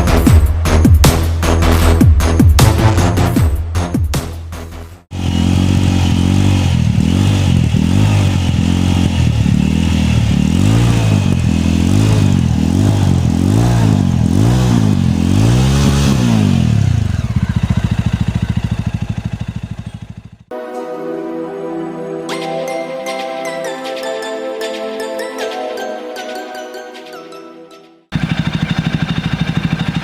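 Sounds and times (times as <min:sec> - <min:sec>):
motorcycle engine revving: 0:05.1 - 0:20.5, 0:28.1 - 0:30.0.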